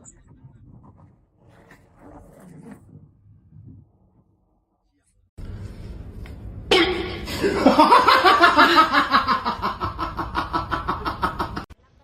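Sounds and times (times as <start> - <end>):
person laughing hard: 7.3 - 11.7.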